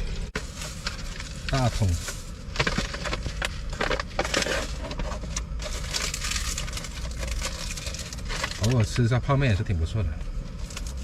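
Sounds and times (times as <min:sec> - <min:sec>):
rustling crackling handling noise: 0:00.0 - 0:09.1, 0:10.5 - 0:11.0
low steady rumble: 0:00.0 - 0:11.0.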